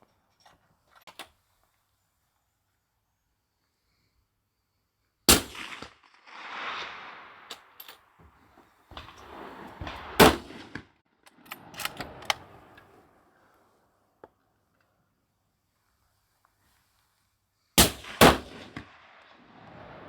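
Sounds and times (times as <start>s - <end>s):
rifle shots: 5.3s - 8.0s, 9.0s - 10.8s, 17.8s - 20.0s
rifle handling noise: 11.3s - 13.0s.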